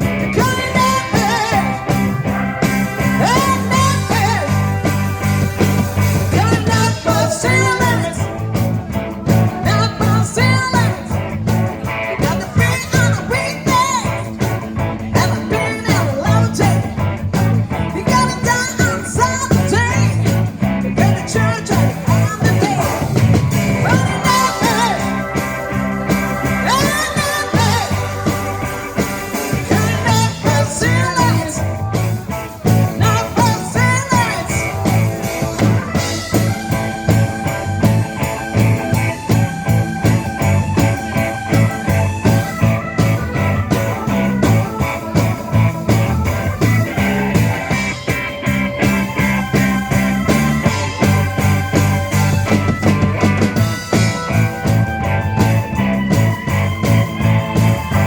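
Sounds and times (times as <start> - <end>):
repeating bass line: 0.0 - 58.0
rock band playing live: 0.0 - 58.0
lead melody bending in pitch: 21.1 - 58.0.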